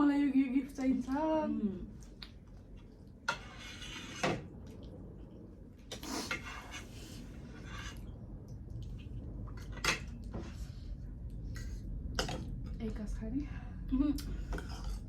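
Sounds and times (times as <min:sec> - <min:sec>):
cutlery scraping dishes: 0:03.2 - 0:04.5, 0:05.9 - 0:08.0, 0:14.4 - 0:15.0.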